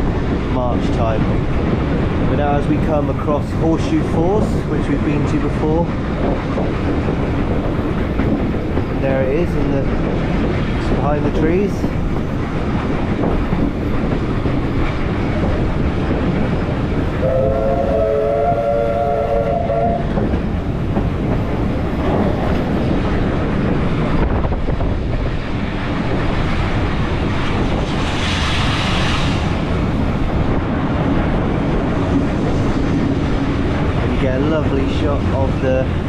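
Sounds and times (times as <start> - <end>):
train rumble and wheel clatter: 0.0 - 36.0
steam whistle: 17.2 - 20.0.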